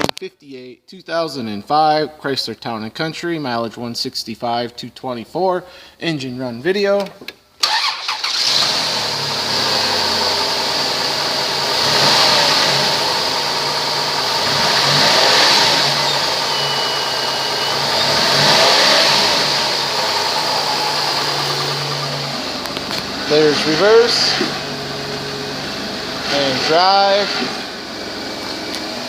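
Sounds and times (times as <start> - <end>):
minivan engine idling and revving: 7.6 - 29.0.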